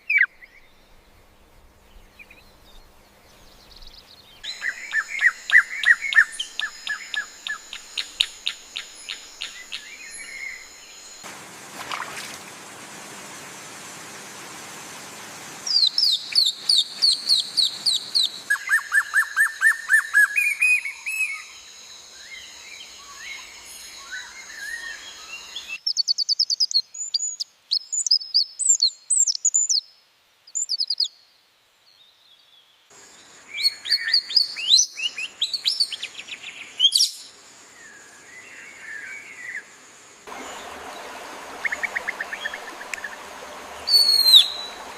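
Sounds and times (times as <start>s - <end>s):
steady hiss: 0.6s - 18.9s, 32.9s - 44.9s
songbirds chirping and singing: 40.4s - 44.9s.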